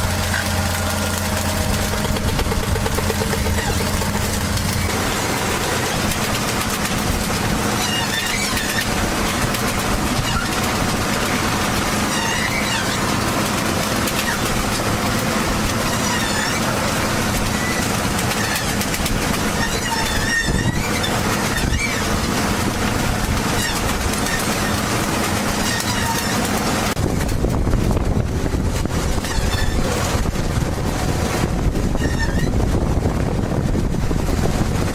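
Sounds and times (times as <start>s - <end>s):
machine engine humming: 0.0s - 34.9s
high wavering squeals: 7.6s - 9.0s.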